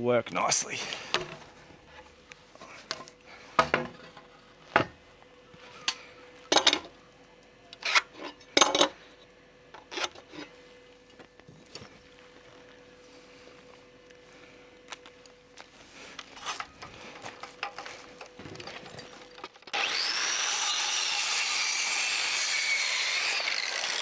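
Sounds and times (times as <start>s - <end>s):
faint steady hum: 0.0s - 19.5s
metal tools clinking: 0.9s - 1.6s, 2.6s - 5.0s, 5.7s - 7.0s, 7.8s - 9.0s, 9.8s - 10.5s, 16.1s - 19.7s.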